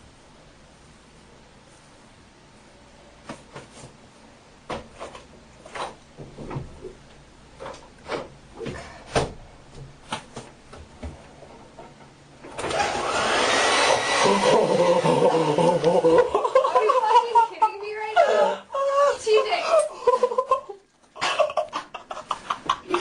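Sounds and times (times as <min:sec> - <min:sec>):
hair dryer blowing: 0:12.6 - 0:16.3.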